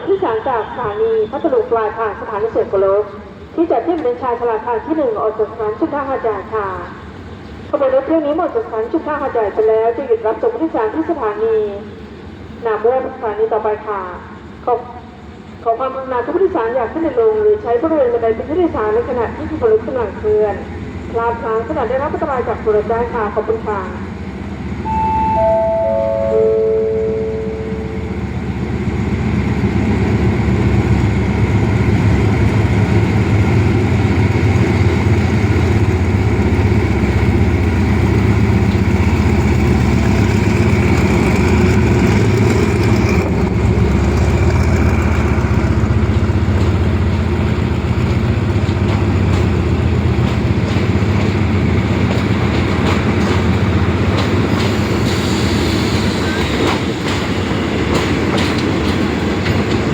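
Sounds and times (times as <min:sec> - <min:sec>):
train engine drone: 0:00.0 - 0:59.9
wheels clicking over rail joints: 0:33.4 - 0:54.8, 0:56.5 - 0:59.9.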